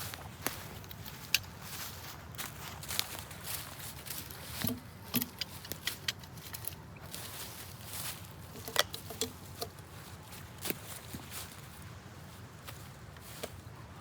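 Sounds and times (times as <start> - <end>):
light clicks and crunches: 0.0 - 11.8.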